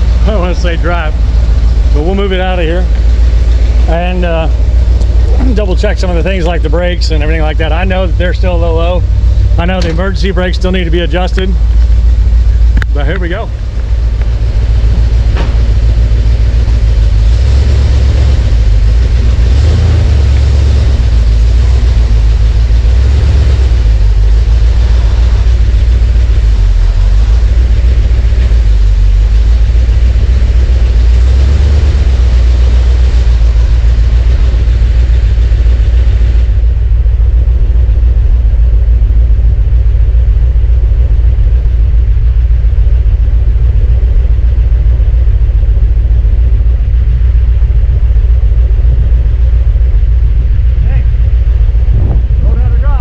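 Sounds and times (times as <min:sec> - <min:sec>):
car engine low rumble: 0:00.0 - 0:53.0.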